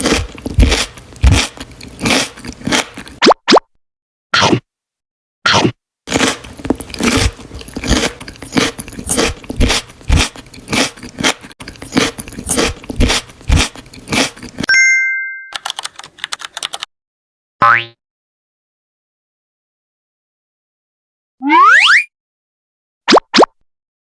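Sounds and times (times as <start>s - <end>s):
crunchy chewing and biting: 0.0s - 3.2s, 5.5s - 14.7s.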